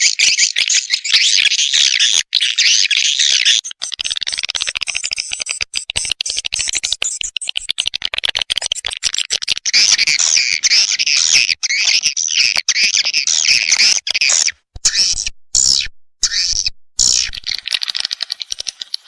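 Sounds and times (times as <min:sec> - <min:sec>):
swiftlet clicking chirps: 0:03.8 - 0:19.0.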